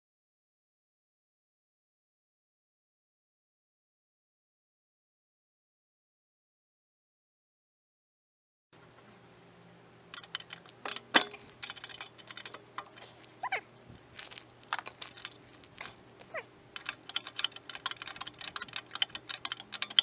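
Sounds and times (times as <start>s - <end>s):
hard objects clicking and clinking: 10.1s - 20.0s.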